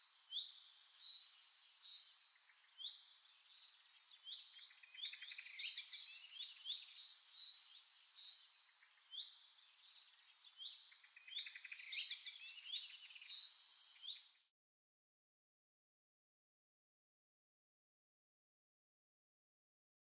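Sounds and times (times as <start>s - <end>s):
small birds chirping and trilling: 0.0s - 14.5s.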